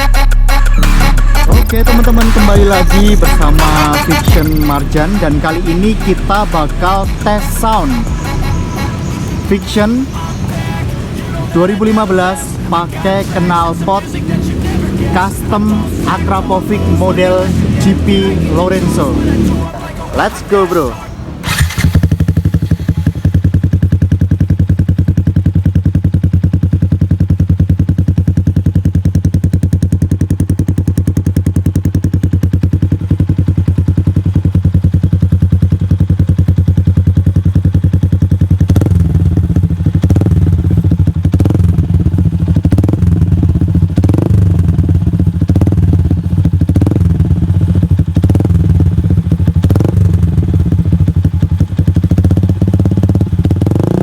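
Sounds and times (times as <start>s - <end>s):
engine revving: 0.0s - 24.9s, 30.2s - 54.0s
motorcycle engine idling: 0.0s - 54.0s.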